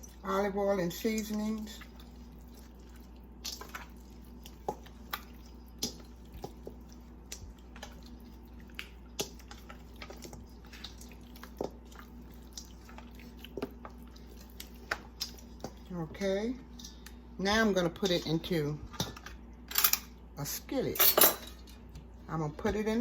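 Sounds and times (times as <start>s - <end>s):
hands squelching raw meat: 1.0s - 16.0s.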